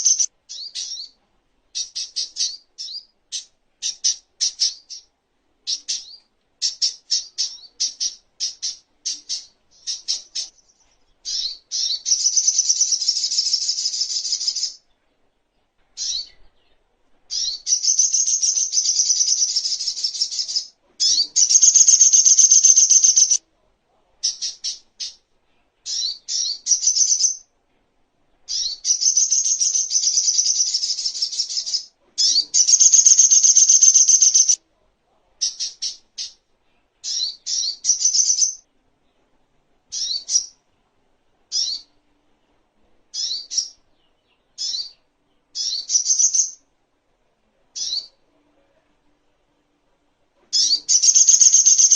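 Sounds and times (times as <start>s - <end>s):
bird singing chirps and trills: 0.0s - 1.2s, 5.7s - 14.8s, 16.0s - 23.4s, 25.9s - 27.4s, 28.5s - 34.6s, 37.0s - 38.6s, 43.2s - 46.6s, 50.6s - 51.9s.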